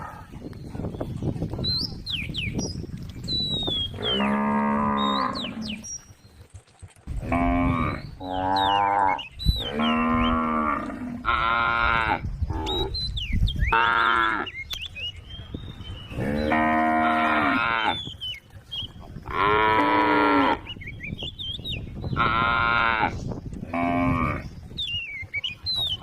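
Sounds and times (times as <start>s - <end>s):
cattle mooing: 4.0s - 5.8s, 7.2s - 12.9s, 16.1s - 18.0s, 19.3s - 20.7s.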